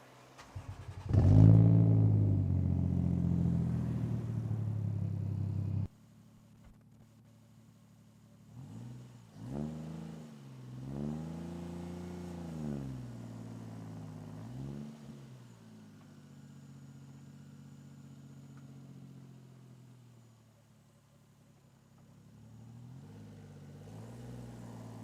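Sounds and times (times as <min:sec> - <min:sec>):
car engine idling: 0:00.2 - 0:08.5
car engine revving: 0:00.4 - 0:05.9.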